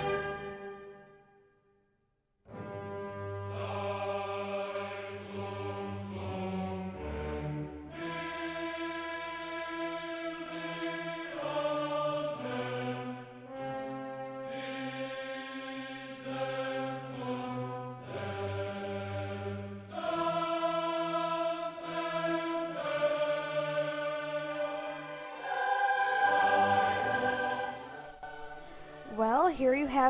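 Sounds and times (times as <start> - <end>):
slow choir-like chords: 0.0 - 1.3, 2.5 - 30.0.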